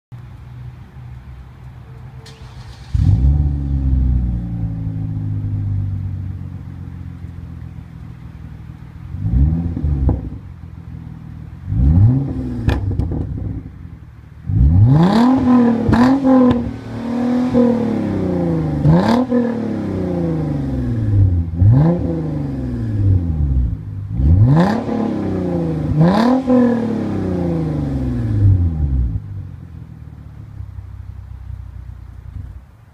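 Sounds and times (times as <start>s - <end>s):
car engine starting and idling: 0.2s - 32.9s
engine revving: 2.3s - 5.8s, 9.1s - 10.4s, 11.6s - 13.7s, 14.4s - 29.3s.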